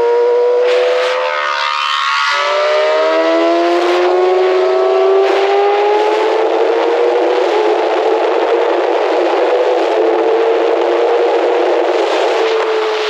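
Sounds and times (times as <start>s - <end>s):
sport bike engine accelerating: 0.0s - 13.0s.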